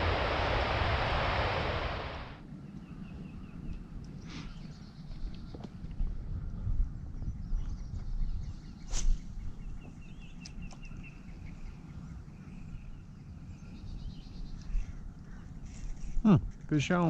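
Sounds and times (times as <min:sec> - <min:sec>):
small bird chirping: 0:07.2 - 0:15.0
sharp swishing noise: 0:08.9 - 0:09.3.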